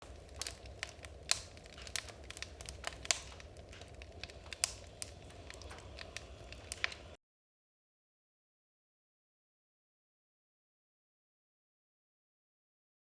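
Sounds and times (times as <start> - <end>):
firewood crackling: 0.0 - 7.2.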